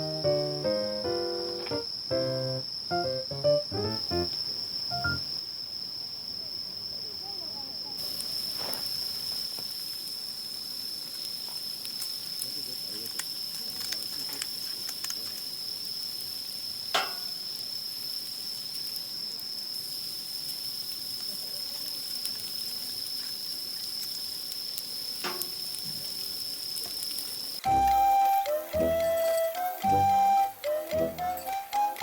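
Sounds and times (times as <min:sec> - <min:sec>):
high-pitched insect drone: 0:00.0 - 0:05.5, 0:27.3 - 0:32.0
faint crackles and ticks: 0:08.0 - 0:16.3, 0:17.5 - 0:28.8.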